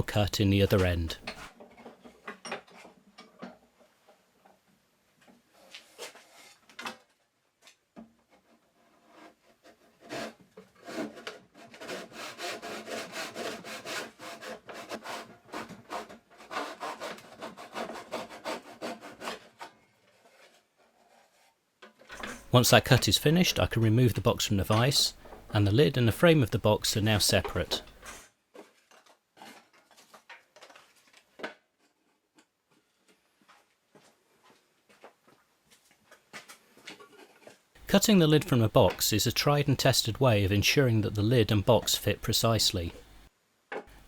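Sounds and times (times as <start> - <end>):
hand saw cutting wood: 9.0 - 21.2.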